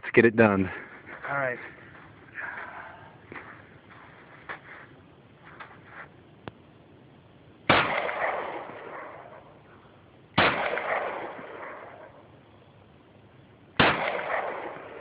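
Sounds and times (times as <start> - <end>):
pistol shots with echo: 7.7 - 9.6, 10.4 - 12.3, 13.8 - 15.0.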